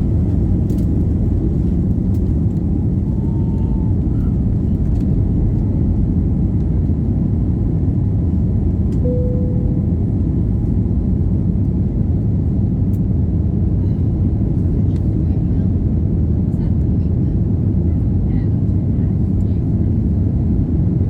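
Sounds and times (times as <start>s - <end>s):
jet engine rumble in cabin: 0.0s - 21.0s
short steady tone: 9.0s - 10.2s.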